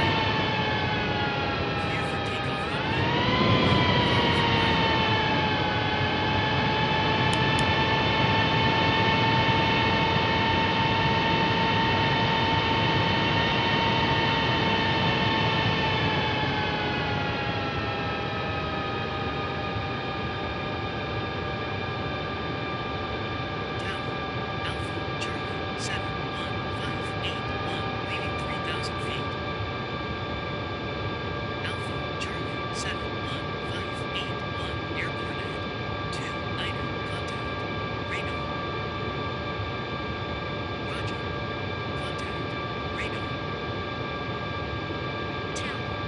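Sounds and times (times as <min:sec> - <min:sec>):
jet engine whine: 0:00.0 - 0:46.0.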